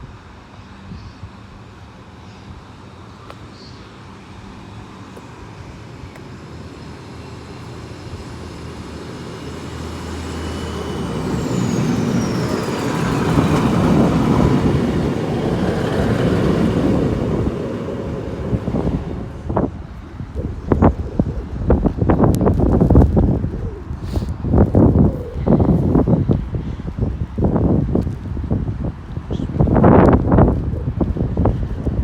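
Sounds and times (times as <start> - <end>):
thin steady whining tones: 0.3 - 27.7
train rumbling past: 4.1 - 31.4.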